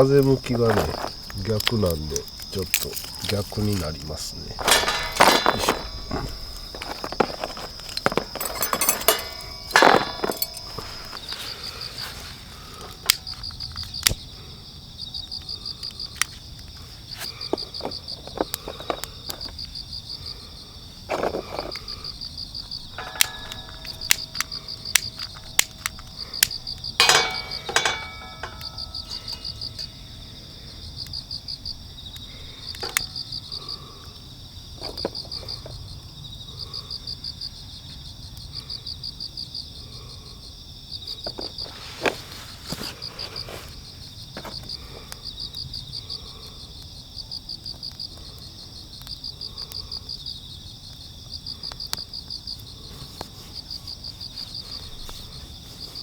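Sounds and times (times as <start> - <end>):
crickets chirping: 0.0 - 56.0
high insect drone: 0.0 - 56.0
clicks and metallic clinks: 0.1 - 13.4, 22.8 - 30.3, 32.7 - 33.5
clatter: 4.6 - 11.5, 23.0 - 30.0.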